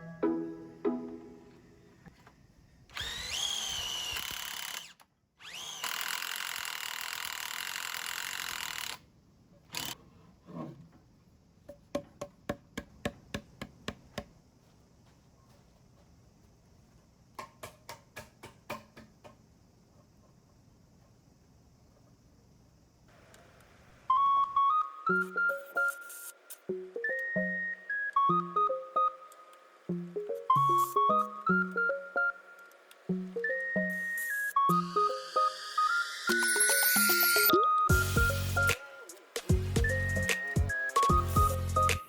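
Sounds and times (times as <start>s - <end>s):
power drill whining: 2.9s - 9.0s, 9.7s - 10.0s.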